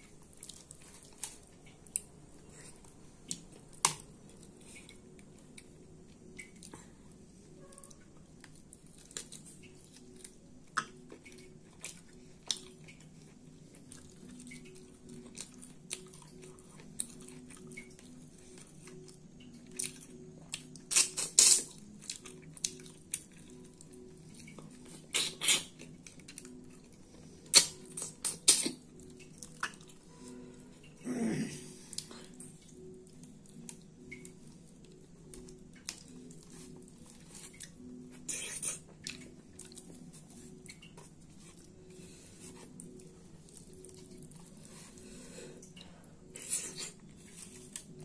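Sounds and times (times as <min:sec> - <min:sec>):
wet chewing and lip-smacking: 0:07.8 - 0:30.1, 0:31.9 - 0:45.0.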